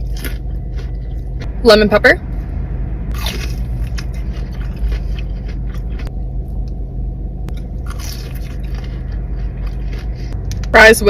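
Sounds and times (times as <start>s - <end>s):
chewing crunchy food: 0.0s - 1.3s, 3.1s - 6.1s, 7.5s - 10.7s
low rumble: 0.0s - 11.0s.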